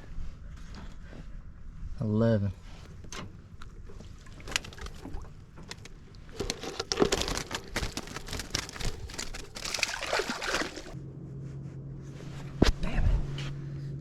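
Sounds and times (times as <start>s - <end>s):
water splashing and sloshing: 2.9s - 11.0s
knocks and clatter of handling: 3.0s - 11.0s.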